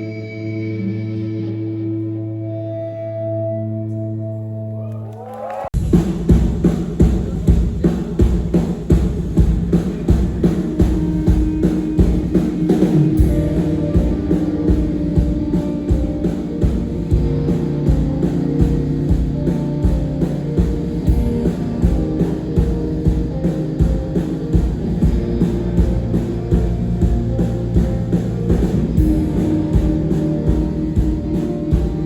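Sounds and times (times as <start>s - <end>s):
electric guitar: 0.0s - 5.6s, 9.7s - 32.0s
drum kit steady beat: 5.8s - 32.0s.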